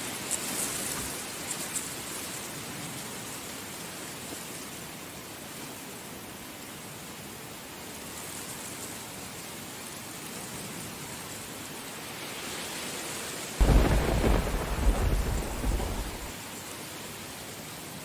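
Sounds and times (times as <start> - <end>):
heavy rain: 0.0 - 18.0
thunderclap rumbling: 13.6 - 16.4.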